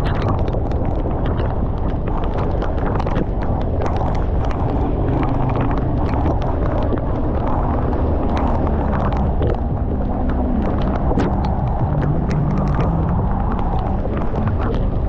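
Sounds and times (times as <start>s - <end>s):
raindrops tapping: 0.0s - 15.0s
wind noise: 0.0s - 15.0s.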